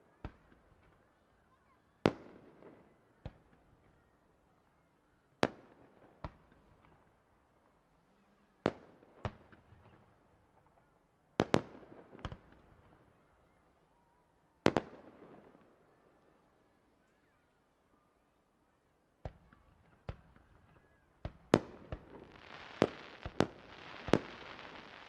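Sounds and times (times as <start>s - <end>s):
fireworks bangs: 21.2s - 25.0s.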